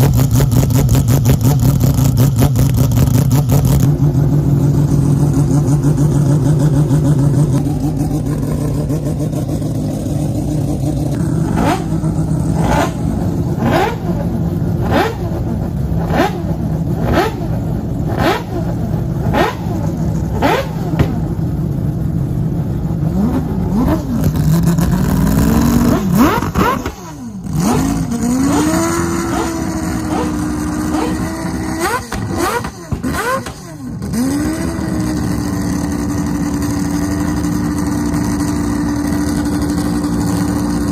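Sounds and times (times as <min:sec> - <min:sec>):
racing engine idling and revving: 0:00.0 - 0:40.9.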